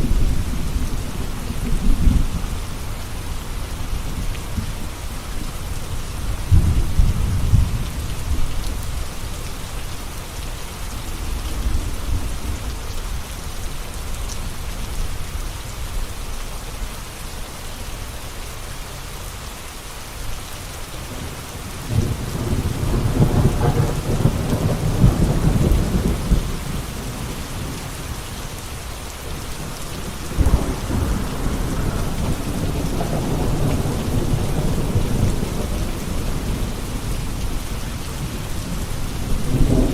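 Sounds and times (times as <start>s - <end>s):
thunder rumbling: 0.0s - 3.2s, 6.2s - 9.0s, 21.1s - 28.1s, 28.9s - 39.9s
steady rain: 0.0s - 39.9s.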